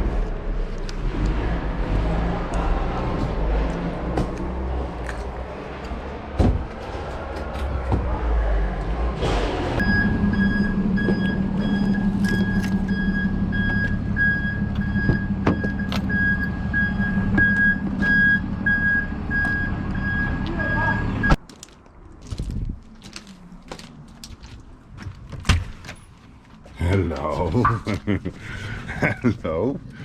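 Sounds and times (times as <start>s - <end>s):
vehicle engine humming: 0.0s - 30.0s
electronic warning beeper pulsing: 9.8s - 21.4s.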